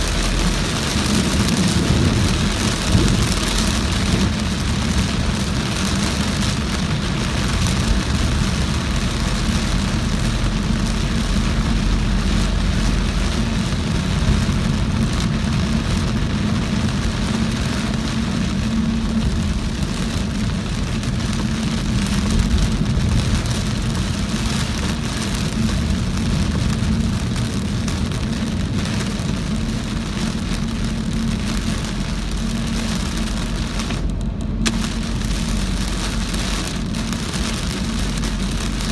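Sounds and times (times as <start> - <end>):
engine and road rumble: 0.0 - 38.9
rain hissing on car: 0.0 - 38.9.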